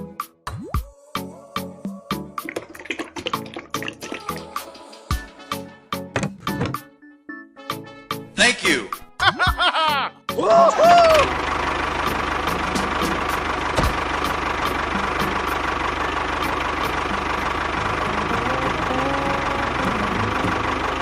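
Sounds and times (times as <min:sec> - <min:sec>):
small tractor engine running: 0:11.0 - 0:21.0.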